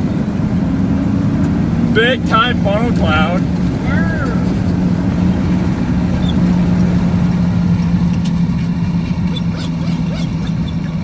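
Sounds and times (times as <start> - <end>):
car engine and road drone: 0.0 - 11.0.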